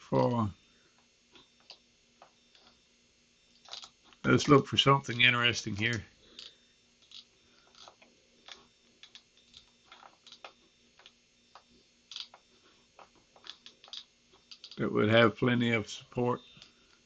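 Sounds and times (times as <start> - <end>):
computer mouse clicking: 8.5 - 12.4, 13.4 - 14.8.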